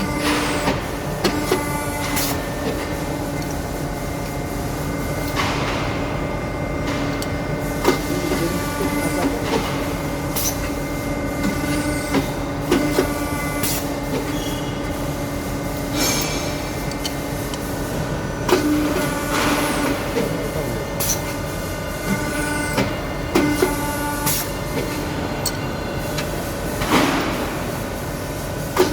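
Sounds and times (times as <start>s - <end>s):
machine humming: 0.0s - 28.9s
machine knocks and clicks: 5.2s - 6.2s.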